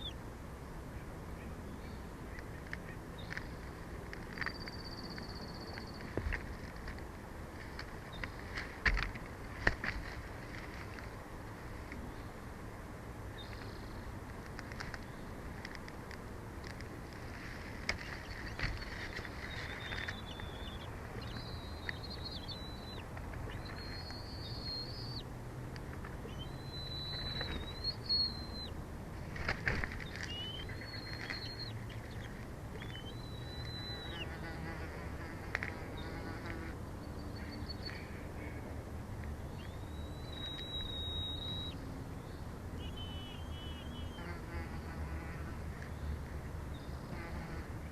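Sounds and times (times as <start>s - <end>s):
bird calling: 17.9s - 25.3s, 26.2s - 28.8s, 30.0s - 35.3s, 39.6s - 41.8s, 42.8s - 44.8s.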